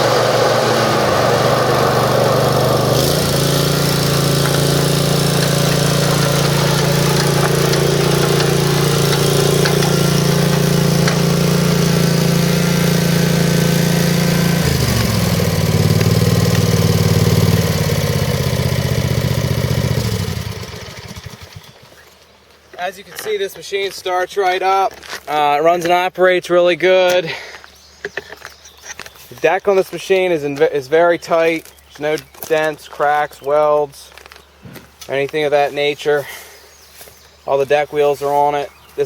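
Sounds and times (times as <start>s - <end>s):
mower engine running: 0.0s - 22.0s.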